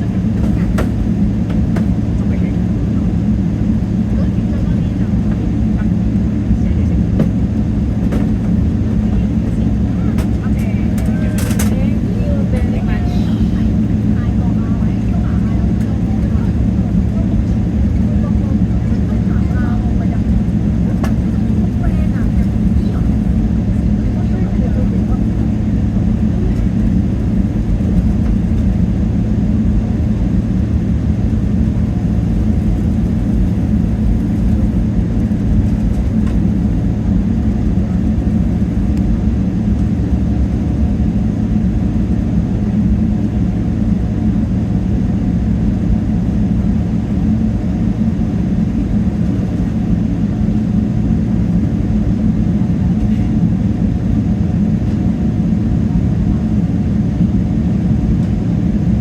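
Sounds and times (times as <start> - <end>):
jet engine drone in cabin: 0.0 - 59.0.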